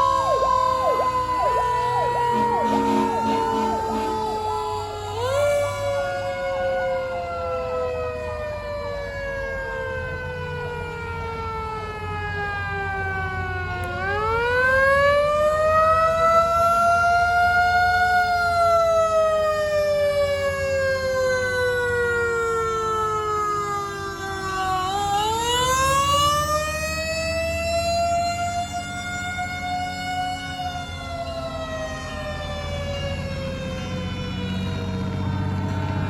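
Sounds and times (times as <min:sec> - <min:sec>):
vehicle engine rumbling: 0:00.0 - 0:06.5, 0:32.1 - 0:36.0
fire truck siren wailing: 0:00.0 - 0:36.0.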